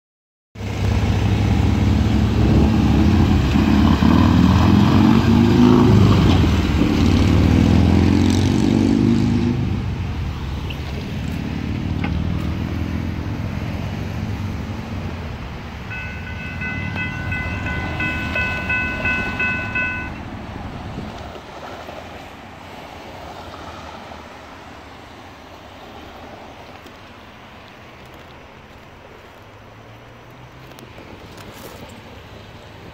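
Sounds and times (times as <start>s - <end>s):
train rumbling past: 1.0s - 24.7s
crossing bell ringing tone: 15.9s - 20.7s.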